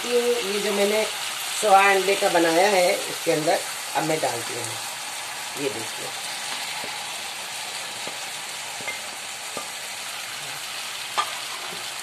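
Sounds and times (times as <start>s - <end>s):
masala sizzling in frying pan: 0.0s - 12.0s.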